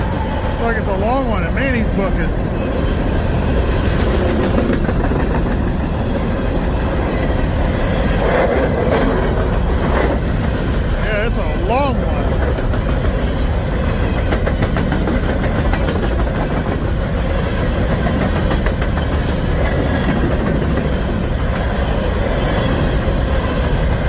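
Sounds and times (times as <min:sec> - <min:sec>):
freight train rumbling past: 0:00.0 - 0:24.0
train wheels clicking over rail joints: 0:03.0 - 0:24.0.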